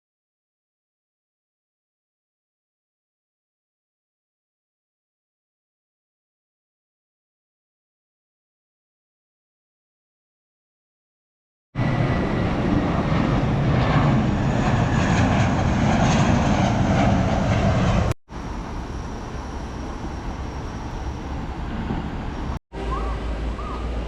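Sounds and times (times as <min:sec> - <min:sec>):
rushing vehicle noise: 0:11.8 - 0:24.0.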